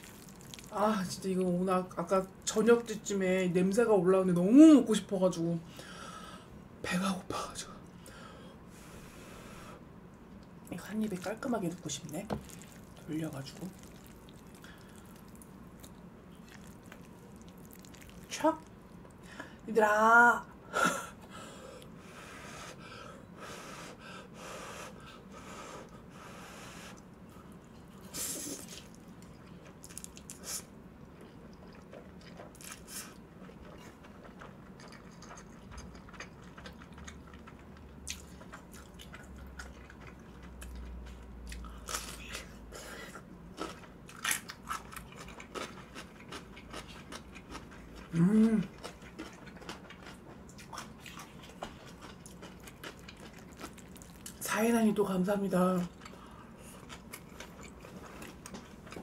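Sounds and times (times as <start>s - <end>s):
chewing sticky noodles: 0.0s - 0.9s, 10.4s - 19.2s, 24.8s - 54.5s, 55.8s - 59.0s.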